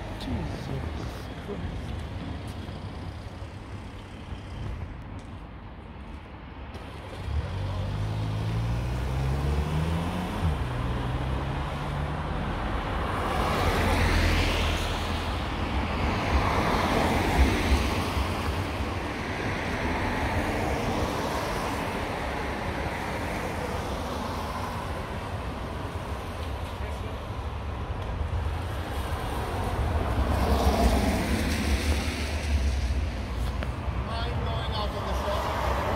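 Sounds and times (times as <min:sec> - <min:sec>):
street noise: 0:00.0 - 0:35.9
car passing on wet road: 0:28.6 - 0:33.4.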